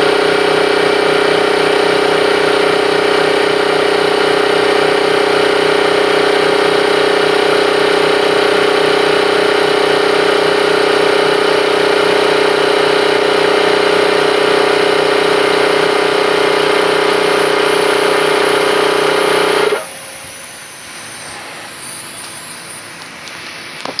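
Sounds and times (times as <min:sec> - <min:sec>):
compressor running: 0:00.0 - 0:24.0
hiss-like noise: 0:19.8 - 0:24.0.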